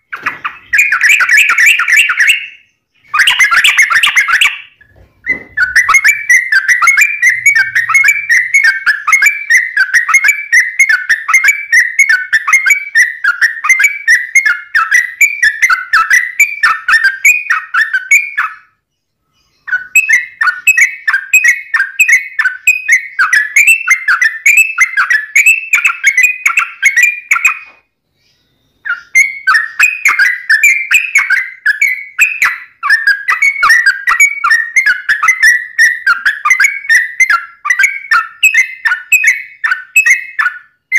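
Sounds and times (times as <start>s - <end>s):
bird singing bubbling notes: 0.0s - 27.6s.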